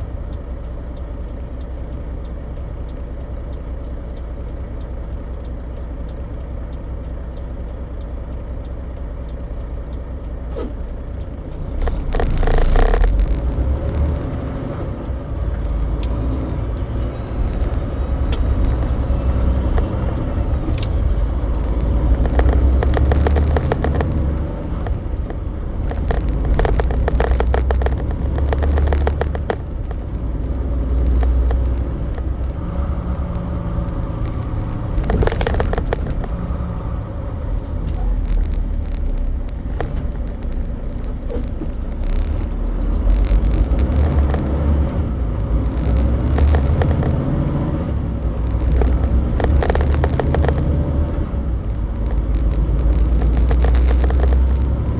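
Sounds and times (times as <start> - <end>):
truck engine and road rumble: 0.0 - 54.9
rapid rattling: 11.3 - 42.6.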